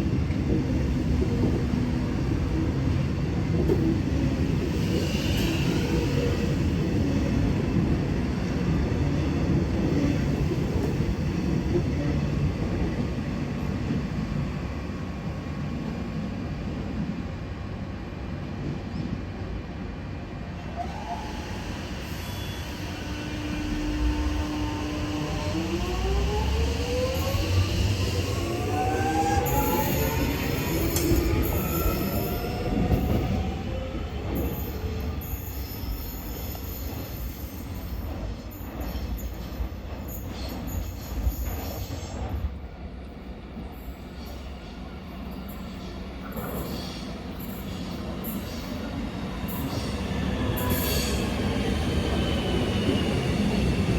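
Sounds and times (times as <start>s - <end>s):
train rumble: 20.8s - 53.9s.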